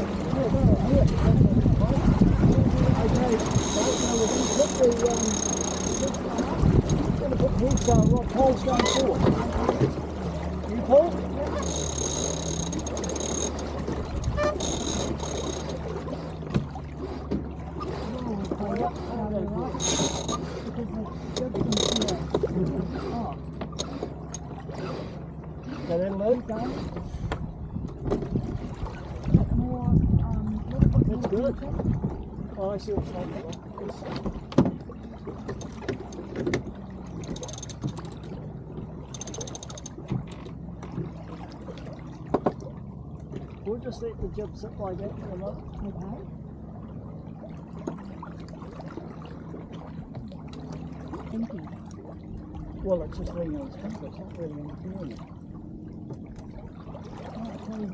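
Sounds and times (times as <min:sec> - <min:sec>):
hull and water noise: 0:00.0 - 0:57.9
low hum: 0:00.0 - 0:57.9
winch pawls clicking: 0:03.1 - 0:09.8, 0:11.4 - 0:15.9, 0:35.5 - 0:38.2, 0:39.1 - 0:40.0
knocks of gear and hull: 0:11.5 - 0:15.8, 0:16.4 - 0:17.5, 0:21.3 - 0:22.5, 0:26.9 - 0:28.4, 0:33.0 - 0:41.1, 0:42.2 - 0:42.6.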